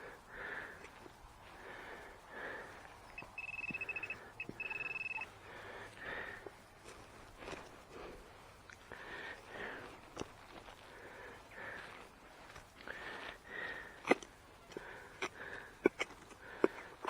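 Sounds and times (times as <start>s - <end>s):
metal detector beeping: 3.1s - 5.3s.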